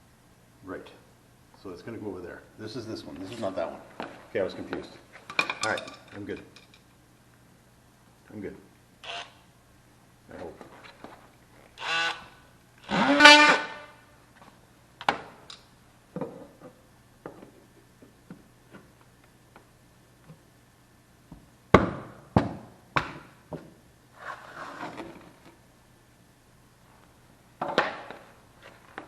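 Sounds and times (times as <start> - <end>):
short scraping sounds: 24.1 - 25.3.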